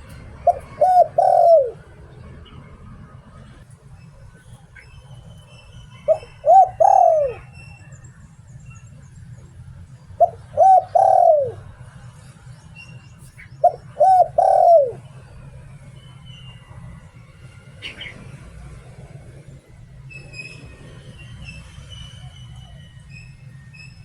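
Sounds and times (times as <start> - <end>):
dove cooing: 0.0 - 2.1, 6.0 - 7.6, 10.1 - 11.7, 13.6 - 15.2.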